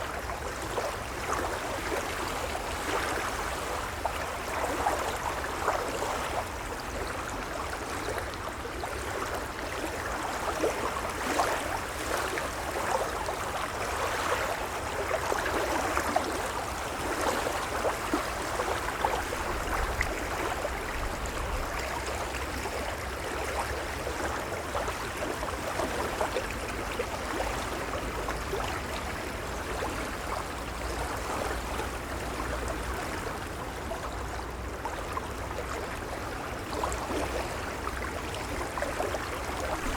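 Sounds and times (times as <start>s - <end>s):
waves lapping: 38.5s - 39.9s.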